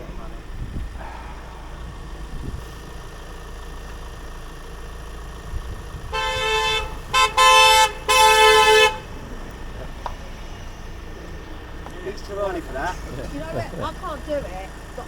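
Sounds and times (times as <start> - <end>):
low rumble of passing traffic: 0.0 - 15.0
car horn honking: 5.9 - 9.4.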